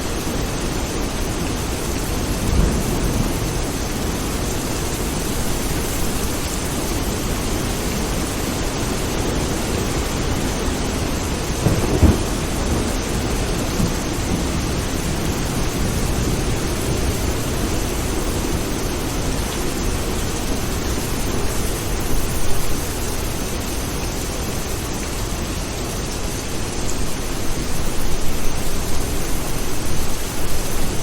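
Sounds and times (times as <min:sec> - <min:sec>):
steady rain: 0:00.0 - 0:31.0
thunder crack and rumble: 0:01.3 - 0:06.4, 0:07.0 - 0:21.3.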